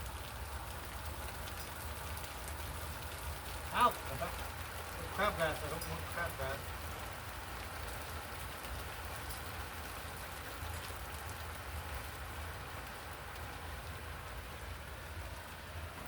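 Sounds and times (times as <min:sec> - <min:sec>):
rain hissing: 0:00.0 - 0:16.0.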